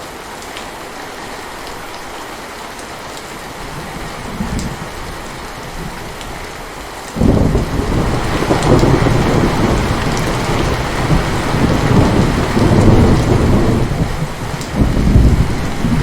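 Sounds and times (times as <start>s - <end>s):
heavy rain falling: 0.0s - 16.0s
rolling thunder rumble: 3.6s - 6.2s, 7.2s - 16.0s.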